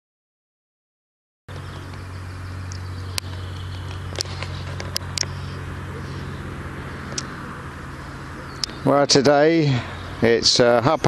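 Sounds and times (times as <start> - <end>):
low engine hum: 1.5 - 11.0.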